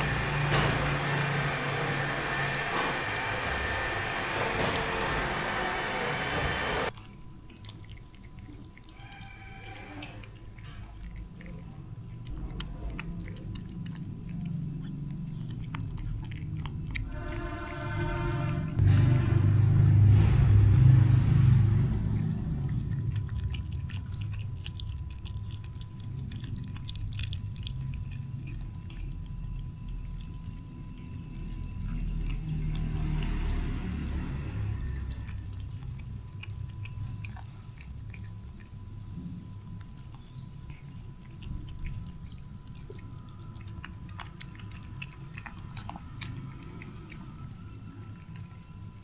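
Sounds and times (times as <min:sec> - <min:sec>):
cats chewing and crunching: 0:00.0 - 0:49.0
low steady rumble: 0:10.3 - 0:49.0.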